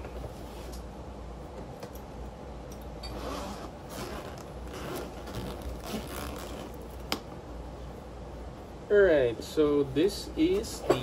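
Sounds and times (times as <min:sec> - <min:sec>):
zipper being pulled open: 0:03.0 - 0:06.9.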